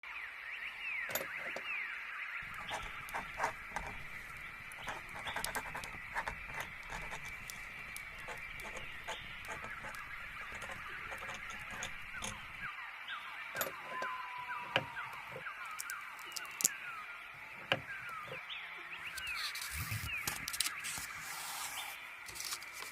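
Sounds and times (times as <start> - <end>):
small birds chirping: 0.6 - 22.9
sharp clicks and ticks: 2.4 - 12.7.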